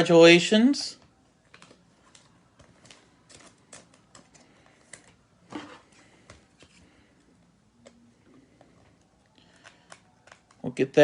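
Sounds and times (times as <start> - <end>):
trading cards clicking and tapping: 9.4 - 10.7.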